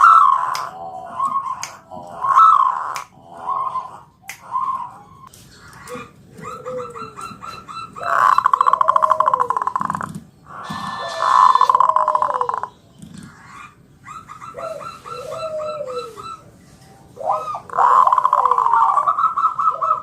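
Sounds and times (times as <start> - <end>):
dove cooing: 0.0 - 20.0
low sliding coo: 10.6 - 12.7, 14.6 - 16.5.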